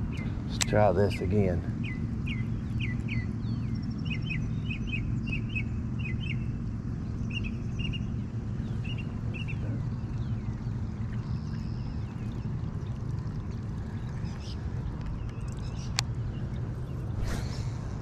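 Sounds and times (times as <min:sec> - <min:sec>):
small bird chirping: 0:00.0 - 0:17.8
steady low rumble: 0:00.0 - 0:18.0.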